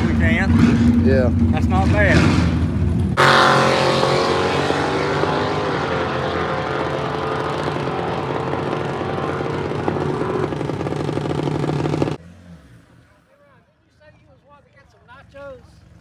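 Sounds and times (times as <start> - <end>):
engine running steadily: 0.0 - 12.2.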